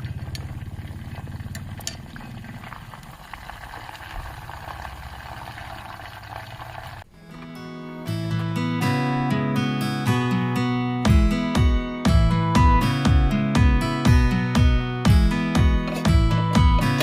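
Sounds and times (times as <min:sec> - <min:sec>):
chicken deep-frying in oil: 0:00.0 - 0:07.1
acoustic guitar music: 0:07.1 - 0:17.0.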